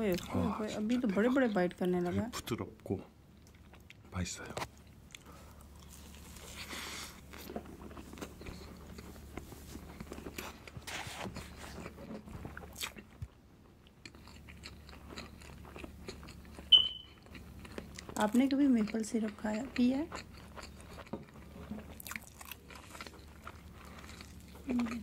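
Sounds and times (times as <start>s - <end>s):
man biting and chewing: 4.7s - 18.2s, 20.1s - 25.0s.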